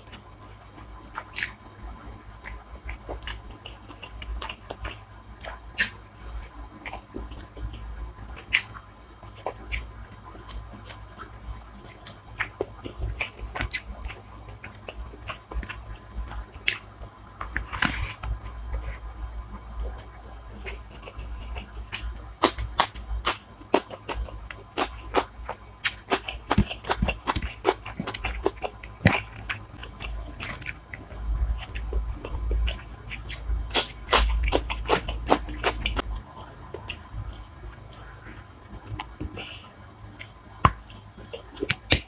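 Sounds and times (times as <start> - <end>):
chewing with wet mouth clicks: 0.0 - 1.6, 2.4 - 17.1, 19.8 - 42.0.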